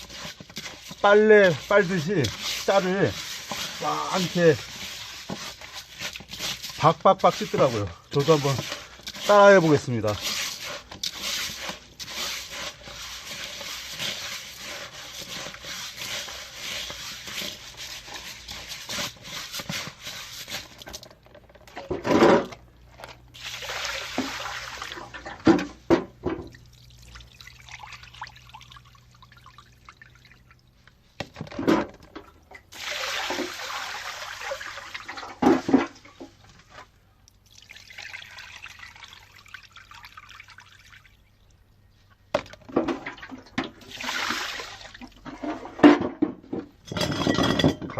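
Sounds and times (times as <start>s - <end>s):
water splashes: 0.0s - 18.0s, 23.4s - 25.3s, 32.7s - 36.2s, 42.9s - 45.6s
rice swishing in water: 0.0s - 21.0s, 23.4s - 25.2s, 32.8s - 35.8s.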